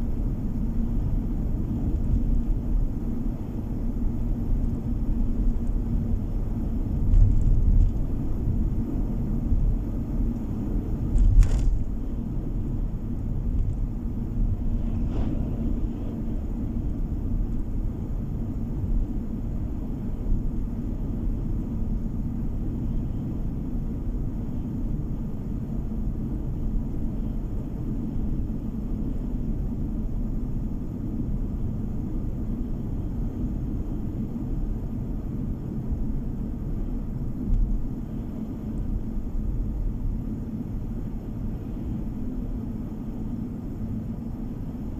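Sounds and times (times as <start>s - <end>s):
car road and engine rumble: 0.0s - 44.9s.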